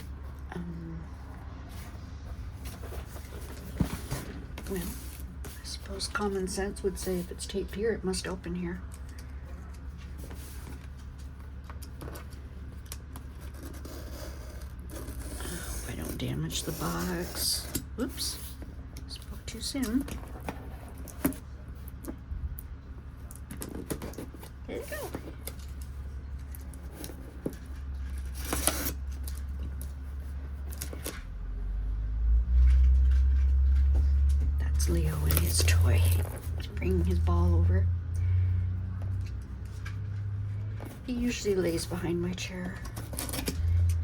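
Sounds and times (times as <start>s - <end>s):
steady low hum: 0.0s - 44.0s
cardboard scraping: 1.7s - 6.0s, 26.6s - 31.2s.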